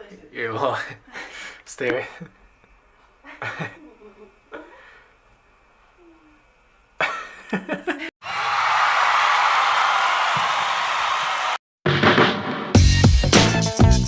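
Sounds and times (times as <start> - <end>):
people laughing: 3.2 - 4.5.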